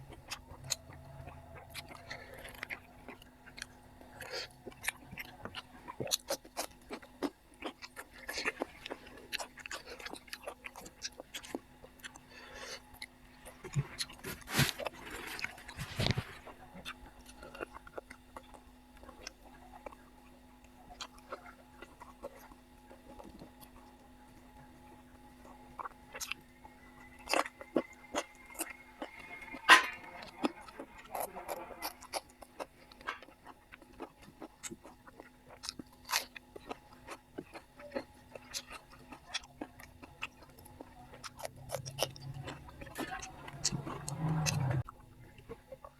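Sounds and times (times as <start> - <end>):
wet chewing: 0.0 - 45.9
breathy slurp: 40.5 - 44.9.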